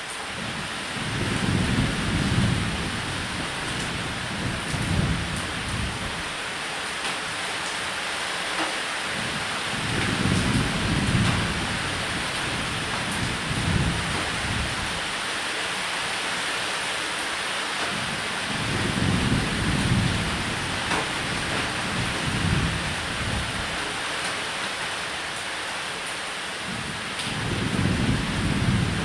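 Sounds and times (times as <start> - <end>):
heavy rain on a roof: 0.0 - 29.0
rolling thunder: 1.0 - 6.3, 9.7 - 15.1, 18.5 - 23.9, 26.7 - 29.0.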